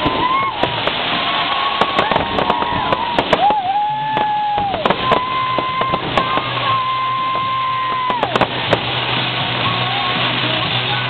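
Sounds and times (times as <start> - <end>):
fireworks bangs: 0.0 - 11.0
fireworks crackling hiss: 0.0 - 11.0
music with long notes: 8.4 - 11.0.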